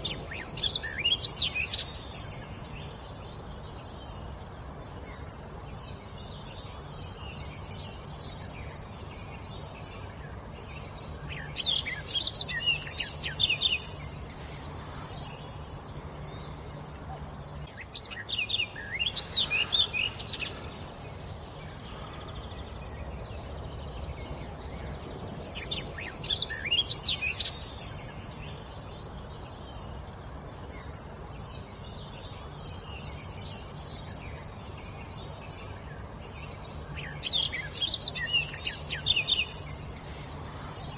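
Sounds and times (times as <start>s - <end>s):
steady low hum: 0.0s - 40.9s
songbird singing high notes: 10.8s - 16.7s, 36.6s - 40.9s.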